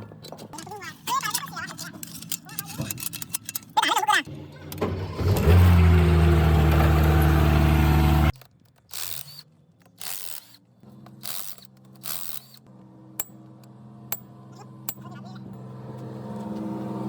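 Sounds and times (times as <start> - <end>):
loud machine hum: 4.3 - 8.3.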